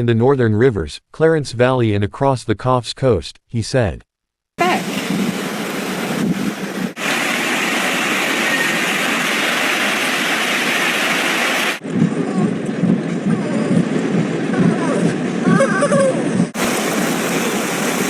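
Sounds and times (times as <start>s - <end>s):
heavy rain: 4.6s - 11.8s, 16.6s - 18.0s
running floodwater: 4.6s - 11.8s, 16.6s - 18.0s.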